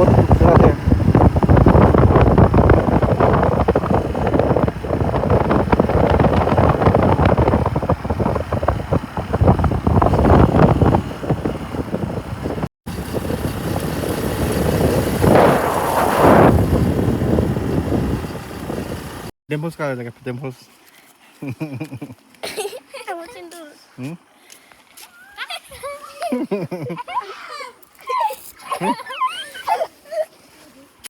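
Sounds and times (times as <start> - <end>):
wind buffeting microphone: 0.0 - 19.3.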